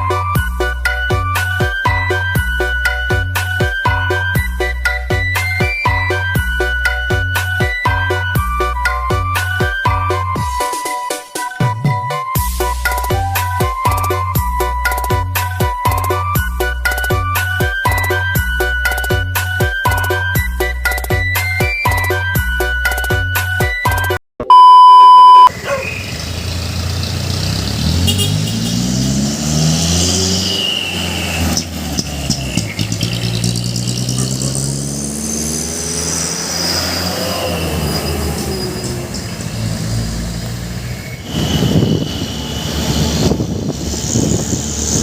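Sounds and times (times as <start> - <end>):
loud steady beep: 24.4 - 25.5
truck engine revving: 25.5 - 45.0.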